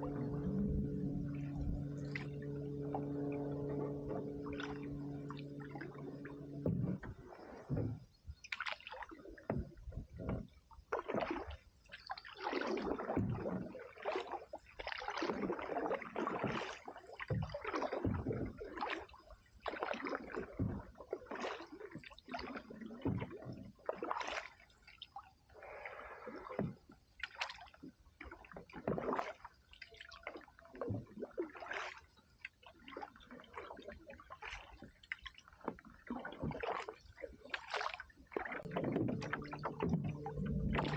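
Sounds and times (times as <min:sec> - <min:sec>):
canoe paddle splashing in water: 0:00.0 - 0:40.9.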